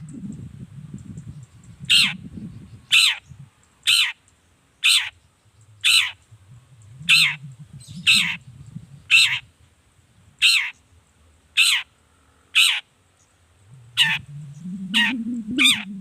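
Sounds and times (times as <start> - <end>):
faint low rumble: 0.0 - 3.6, 5.2 - 11.2, 13.2 - 16.0
bird giving harsh rasping calls: 3.9 - 4.2, 4.8 - 5.1, 5.8 - 6.2, 10.4 - 10.8, 11.6 - 11.9, 12.6 - 12.8, 13.9 - 15.9.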